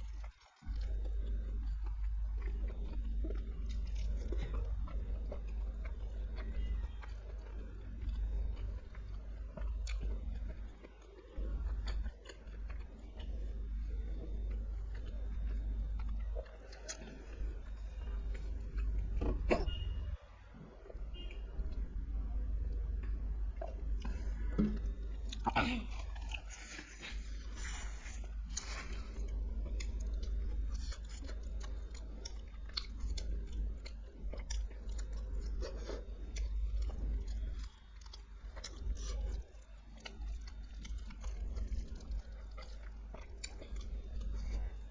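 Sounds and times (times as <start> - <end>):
person chewing food: 0.0 - 20.2, 20.8 - 44.9
steady low hum: 0.0 - 44.9
soft crunches: 24.0 - 32.1.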